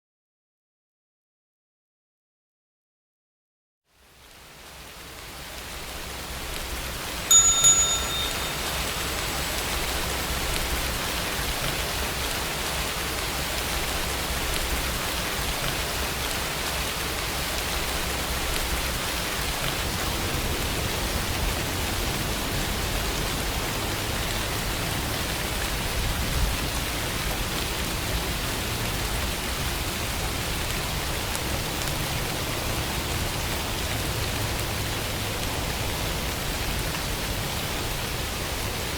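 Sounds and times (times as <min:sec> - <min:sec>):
steady rainfall: 0:03.9 - 0:38.9
bell chime: 0:07.3 - 0:09.8.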